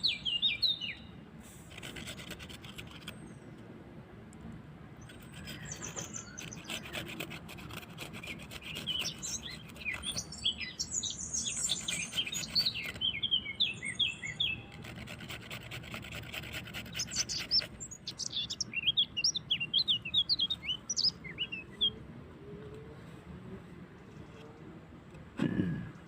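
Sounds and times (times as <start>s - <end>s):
small birds chirping: 0.0s - 3.7s, 5.0s - 22.0s
rapid scratchy rubbing: 1.6s - 3.2s, 5.0s - 10.3s, 11.4s - 13.1s, 14.7s - 18.6s.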